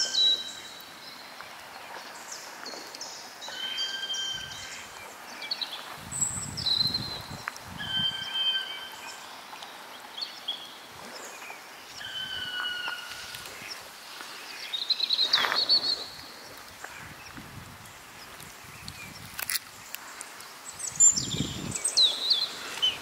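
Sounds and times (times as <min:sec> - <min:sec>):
faint outdoor hiss: 0:00.0 - 0:23.0
birds whistling: 0:03.4 - 0:09.4, 0:12.0 - 0:13.8, 0:14.5 - 0:16.3
trilled bird call: 0:12.0 - 0:13.8.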